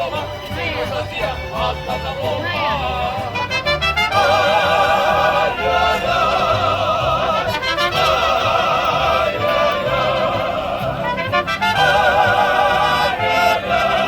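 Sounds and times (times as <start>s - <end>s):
mariachi band playing: 0.0s - 14.0s.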